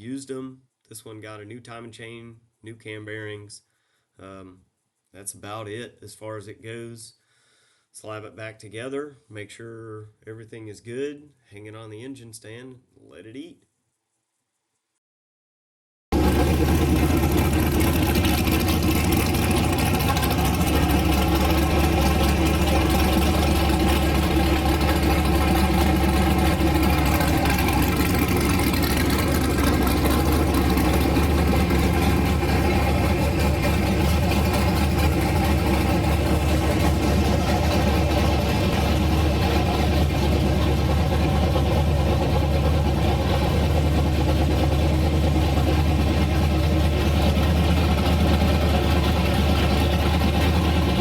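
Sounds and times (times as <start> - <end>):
engine idling: 16.1 - 51.0.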